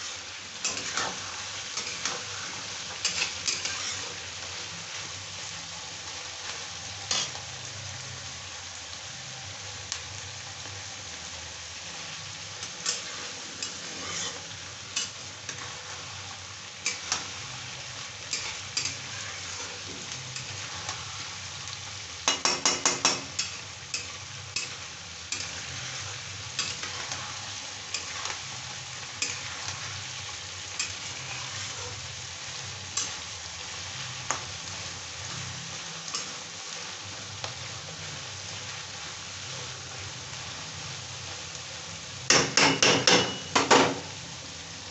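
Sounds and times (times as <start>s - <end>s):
food sizzling in oil: 0.0s - 44.9s
metal spatula scraping pan: 0.6s - 4.2s, 12.8s - 16.0s, 18.3s - 21.3s, 30.8s - 32.0s.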